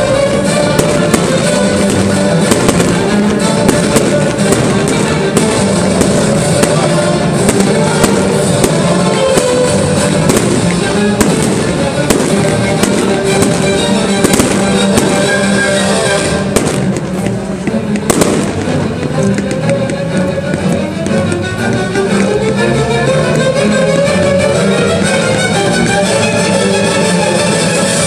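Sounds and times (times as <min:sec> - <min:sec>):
fireworks bangs and crackles: 0:00.0 - 0:22.7
loud music: 0:00.0 - 0:28.0.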